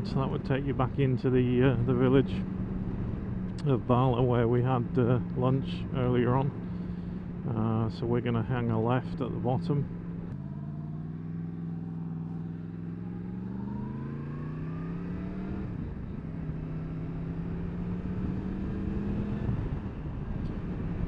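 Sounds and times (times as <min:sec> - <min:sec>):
motorcycle engine accelerating: 0:09.4 - 0:21.0.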